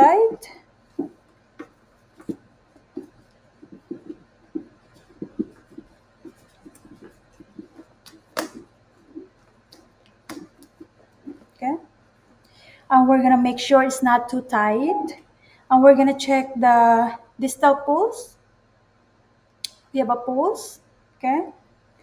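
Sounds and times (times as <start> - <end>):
soft handling taps: 0.9 - 11.6.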